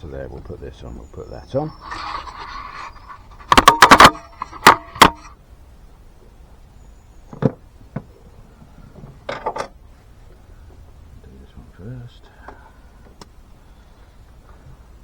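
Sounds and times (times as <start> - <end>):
tools clattering: 1.8 - 5.3.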